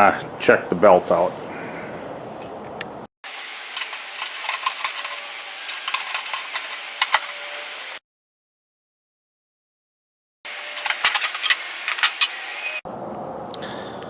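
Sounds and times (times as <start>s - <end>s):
metallic clinks and rattles of tools: 3.3s - 8.0s, 10.5s - 12.8s.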